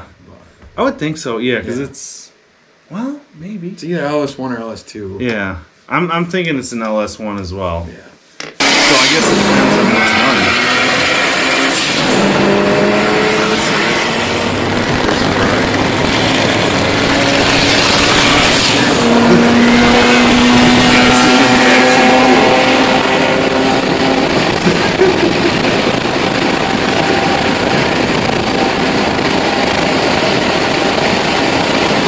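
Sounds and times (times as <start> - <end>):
race car engines running hard: 8.6 - 32.0.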